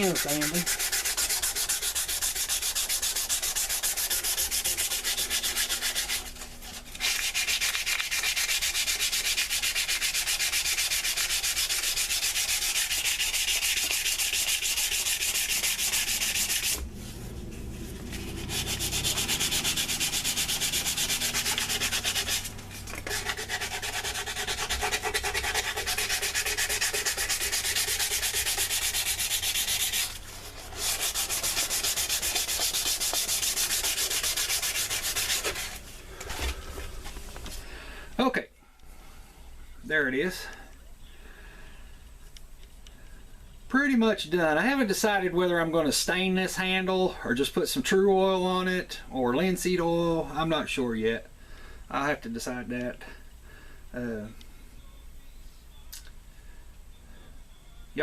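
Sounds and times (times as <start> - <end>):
sandpaper rubbing on wood: 0.0 - 35.8.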